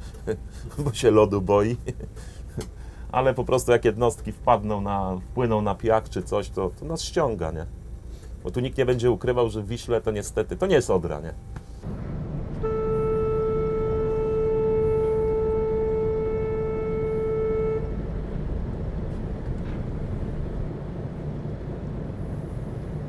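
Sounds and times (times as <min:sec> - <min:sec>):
low rumble of ship engine: 0:00.0 - 0:23.0
ship's horn blast: 0:11.8 - 0:19.5.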